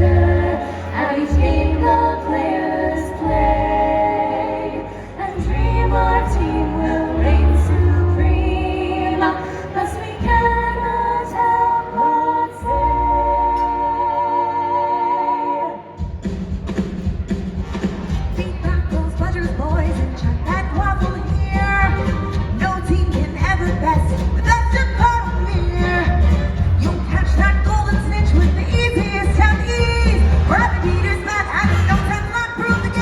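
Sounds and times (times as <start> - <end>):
backing music with heavy bass: 0.0 - 12.0, 16.1 - 33.0
woman singing: 0.0 - 15.9, 18.4 - 33.0.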